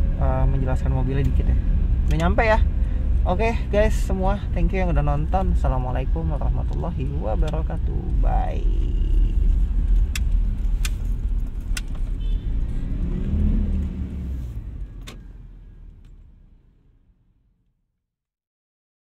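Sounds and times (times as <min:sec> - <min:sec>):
car engine rumbling: 0:00.0 - 0:17.7
sharp clicks: 0:10.0 - 0:12.1.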